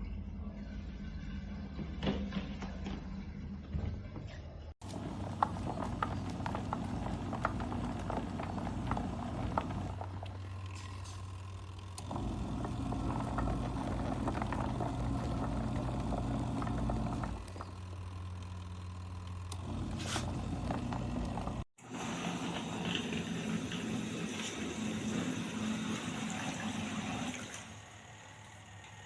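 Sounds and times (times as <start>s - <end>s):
clicking and churning: 4.8s - 21.7s
washing machine motor humming: 4.8s - 29.0s.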